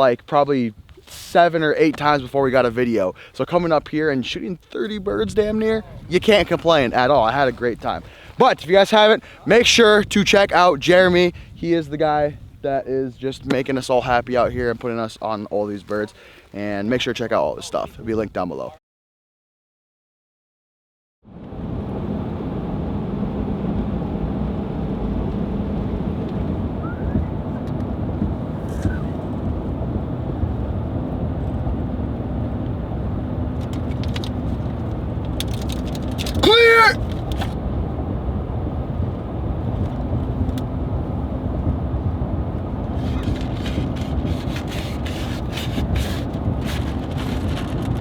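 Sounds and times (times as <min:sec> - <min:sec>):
vehicle road and engine noise: 0:21.3 - 0:48.0.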